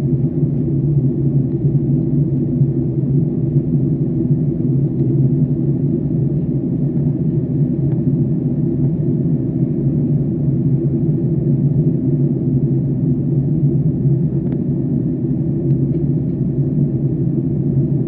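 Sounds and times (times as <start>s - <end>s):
airliner cabin drone: 0.0s - 18.0s.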